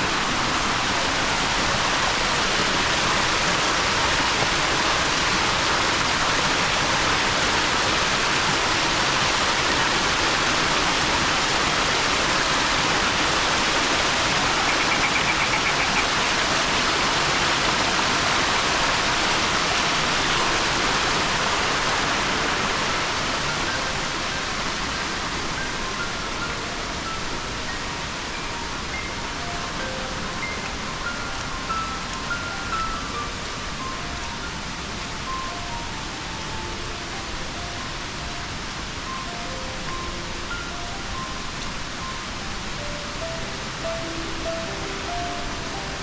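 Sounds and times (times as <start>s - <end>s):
waterfall rushing: 0.0s - 46.0s.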